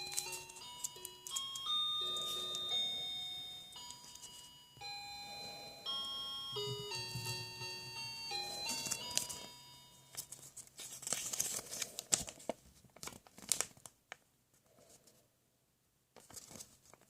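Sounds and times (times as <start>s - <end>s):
packaging crinkling and tearing: 0.0s - 2.6s, 8.8s - 9.5s, 10.1s - 14.0s
electronic chiming melody: 0.0s - 10.2s.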